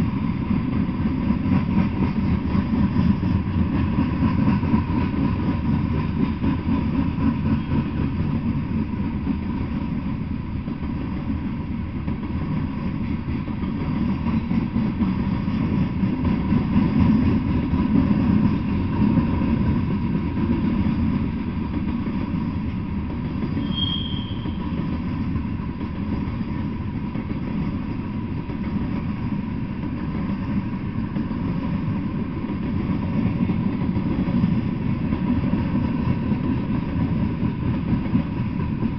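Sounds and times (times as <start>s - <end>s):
train wheels rumbling on rails: 0.0s - 38.9s
high-pitched wheel squeal: 23.5s - 24.8s.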